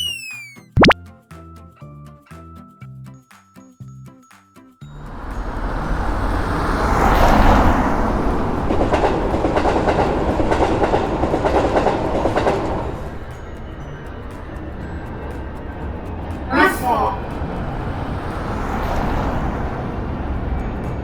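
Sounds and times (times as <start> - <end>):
train rushing past: 4.9 - 21.0
wheels clacking over rail joints: 6.0 - 16.5.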